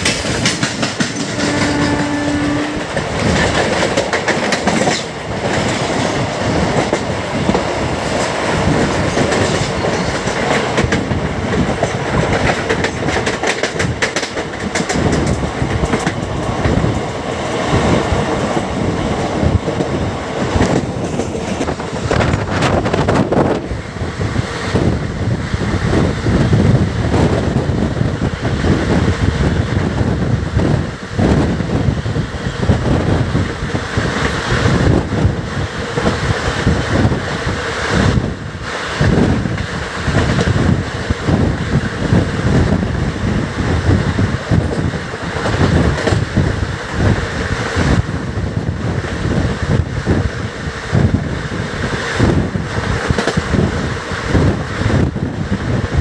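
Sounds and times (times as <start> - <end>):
train coaches rumbling: 0.0 - 56.0
wind buffeting microphone: 0.0 - 56.0.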